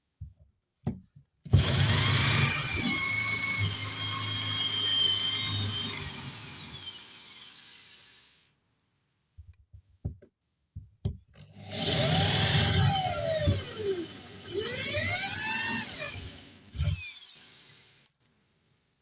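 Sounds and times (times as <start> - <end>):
electric drill boring: 1.6 - 8.4, 11.6 - 18.1.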